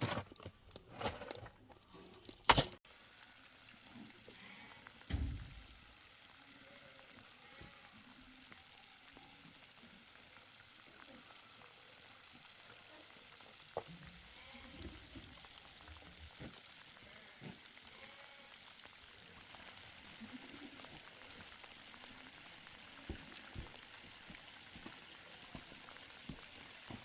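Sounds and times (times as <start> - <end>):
faint rain hiss: 2.9 - 27.0
sharp drips: 19.3 - 27.0.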